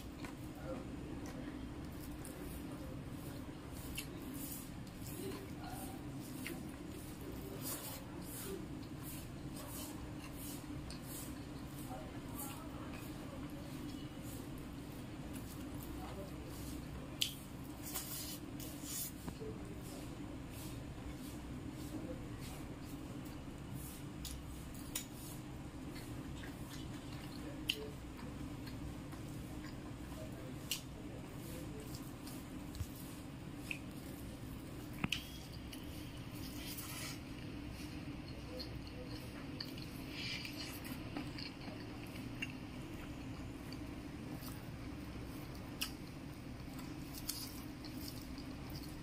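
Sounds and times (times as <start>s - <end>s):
moist squishing of rice: 0.0s - 49.0s
steady low hum: 0.0s - 49.0s
close-up chewing: 25.7s - 49.0s
wet eating squishes: 31.8s - 49.0s.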